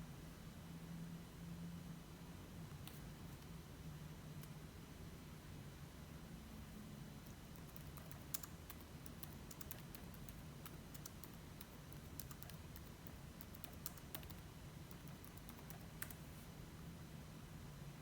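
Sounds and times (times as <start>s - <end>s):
low steady hum: 0.0s - 18.0s
typing on computer keyboard: 7.2s - 16.2s.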